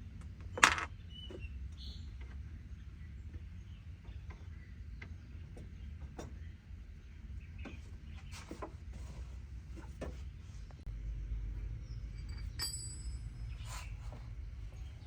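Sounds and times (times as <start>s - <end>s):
low steady rumble: 9.0s - 15.0s.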